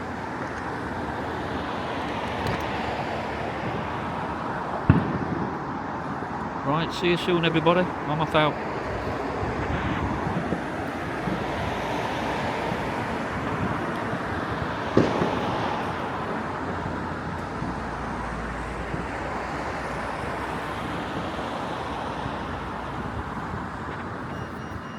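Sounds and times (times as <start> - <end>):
traffic rumble: 0.0 - 24.9
wind: 0.0 - 24.9
firework bang: 4.8 - 6.4, 9.4 - 16.6.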